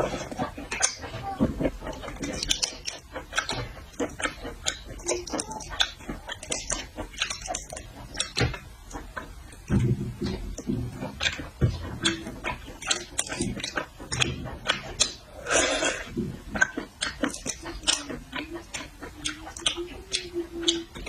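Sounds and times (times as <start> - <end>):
chewing and mouth noises: 0.0 - 21.0
person humming: 17.8 - 21.0.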